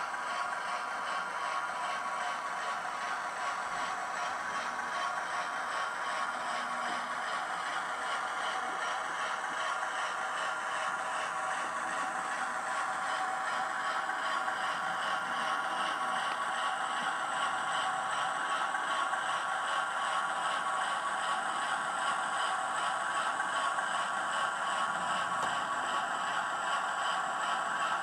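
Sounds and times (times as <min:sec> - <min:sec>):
model train running on track: 0:00.0 - 0:28.0.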